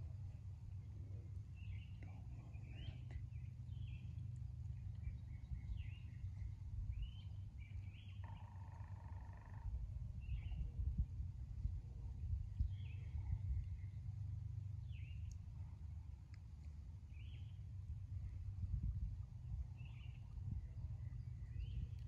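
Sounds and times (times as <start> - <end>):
low rumble: 0.0 - 22.0
small birds chirping: 1.6 - 9.6, 12.5 - 14.0, 17.1 - 17.6.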